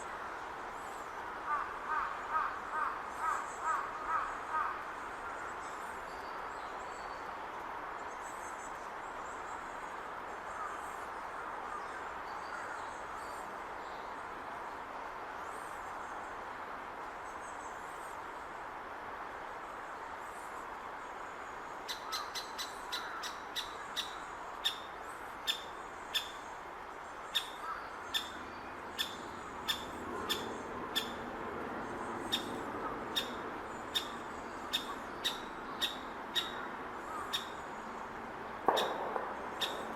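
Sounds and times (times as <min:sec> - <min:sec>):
woodpecker calls: 0:27.3 - 0:31.2, 0:32.3 - 0:37.6, 0:38.7 - 0:39.9.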